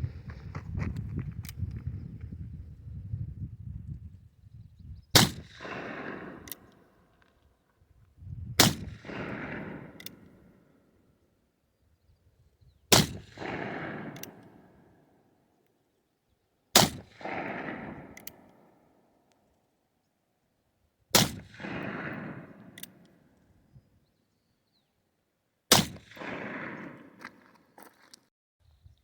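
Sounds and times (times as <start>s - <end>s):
rolling echo of gunshot: 5.2s - 7.0s, 8.6s - 10.6s, 12.9s - 15.2s, 16.7s - 18.8s, 21.1s - 23.2s, 25.7s - 27.3s.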